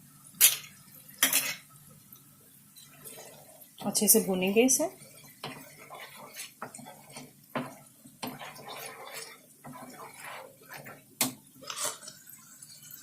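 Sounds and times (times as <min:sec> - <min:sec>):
sauce frying in a pan: 0:00.0 - 0:13.0
utensil stirring and scraping pan: 0:02.8 - 0:13.0.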